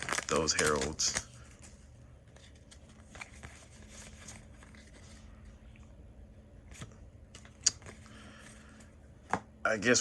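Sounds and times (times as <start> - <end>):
trading cards clicking and rustling: 0.0 - 5.1
faint steady hum: 0.0 - 10.0.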